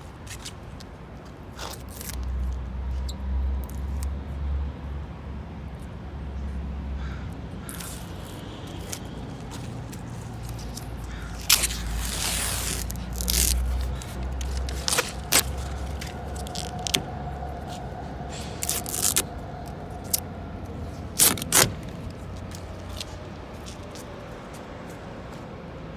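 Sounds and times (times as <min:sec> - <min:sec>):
rubber coating peeling off: 0:07.6 - 0:20.2, 0:21.0 - 0:23.8.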